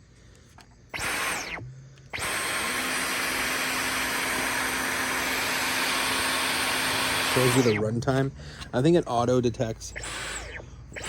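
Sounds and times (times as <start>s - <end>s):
vacuum cleaner motor whining: 1.0s - 7.9s, 9.9s - 11.0s.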